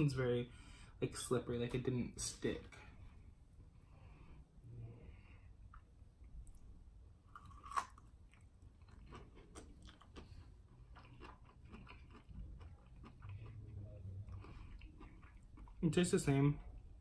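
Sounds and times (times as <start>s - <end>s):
crunchy chewing: 7.3s - 15.8s.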